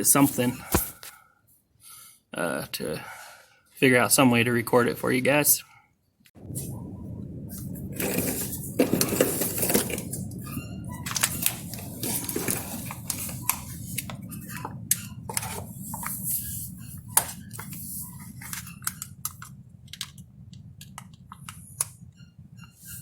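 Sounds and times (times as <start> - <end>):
steady low hum: 6.4 - 23.0.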